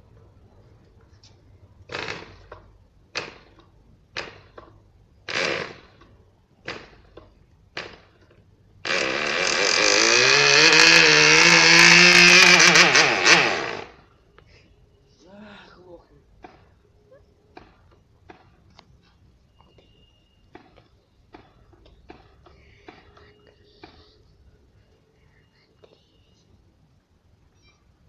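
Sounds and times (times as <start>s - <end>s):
model aircraft engine running: 8.9s - 13.9s.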